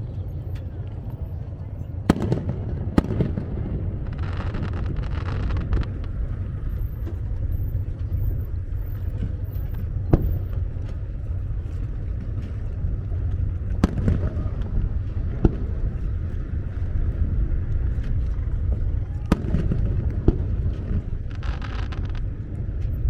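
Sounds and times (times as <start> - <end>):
low rumble: 0.0 - 23.0
firework bangs: 2.0 - 6.7, 13.8 - 15.8, 19.2 - 22.4
crackling hiss: 2.1 - 11.6, 17.7 - 23.0.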